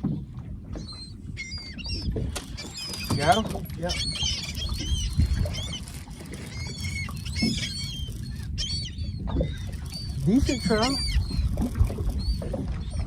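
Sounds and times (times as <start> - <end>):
seabirds calling: 0.7 - 13.0.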